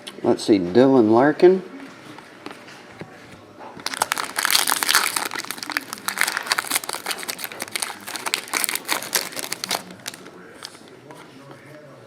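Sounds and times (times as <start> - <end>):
plastic wrapper crinkling: 3.8 - 11.0.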